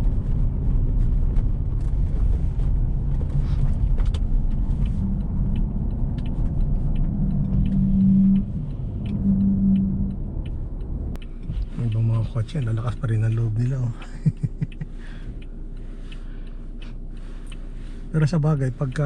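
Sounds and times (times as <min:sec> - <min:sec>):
car tyres and engine rumble: 0:00.0 - 0:19.0
steady hum: 0:02.0 - 0:11.6
faint ticks: 0:02.6 - 0:19.0.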